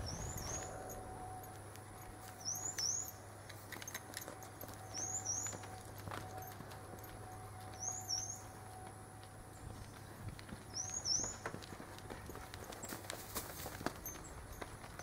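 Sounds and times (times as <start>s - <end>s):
bird chirping: 0.0s - 3.3s, 4.7s - 6.5s, 7.4s - 8.6s, 10.7s - 11.5s
low hum: 0.0s - 10.7s.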